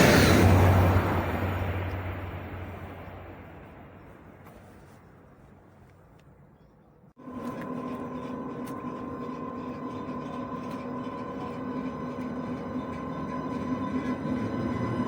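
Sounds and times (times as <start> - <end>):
train rumble: 0.0 - 15.0
train clicks: 7.3 - 15.0.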